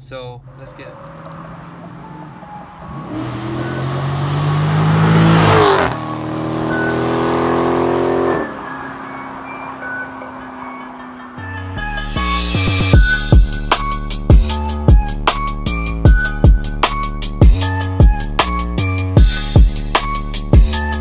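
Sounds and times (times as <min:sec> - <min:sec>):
car engine accelerating past: 0:00.4 - 0:12.9.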